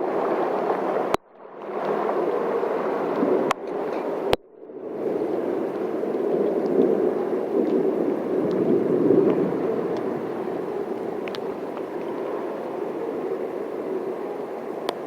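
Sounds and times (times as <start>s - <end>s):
heavy rain: 0.0s - 15.0s
water running in street: 5.0s - 15.0s.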